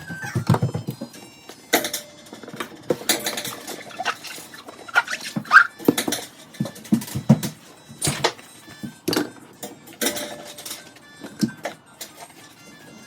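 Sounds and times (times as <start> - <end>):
dishes and cutlery clattering: 0.2 - 12.4
high squeak: 3.5 - 5.8.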